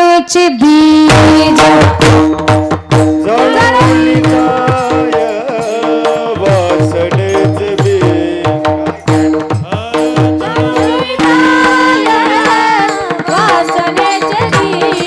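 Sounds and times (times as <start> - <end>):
tabla strokes: 0.9 - 15.0
person singing: 3.2 - 15.0.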